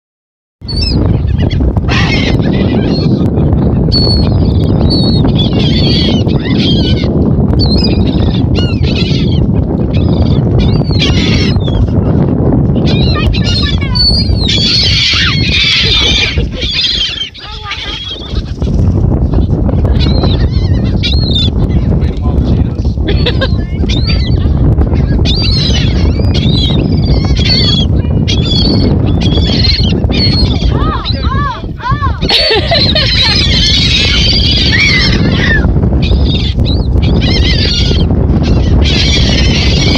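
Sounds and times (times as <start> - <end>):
birds chattering calls: 12.8 - 18.6, 19.9 - 21.6, 23.1 - 31.3, 32.2 - 39.9.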